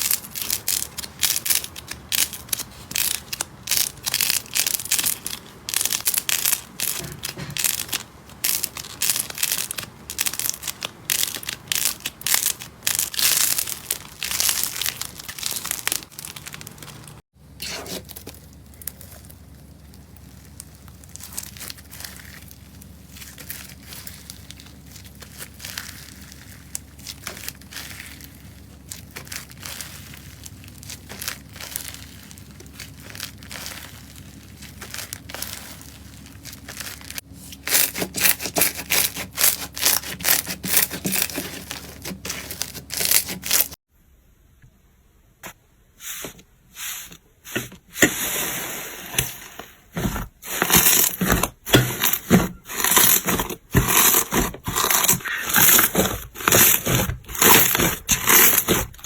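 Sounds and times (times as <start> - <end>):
slime crackling and popping: 0.0 - 43.8.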